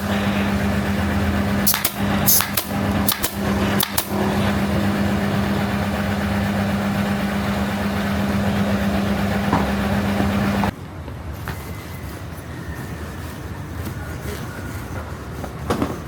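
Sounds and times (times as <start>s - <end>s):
machine hum: 0.0s - 10.8s
sharp clicks: 1.6s - 4.1s.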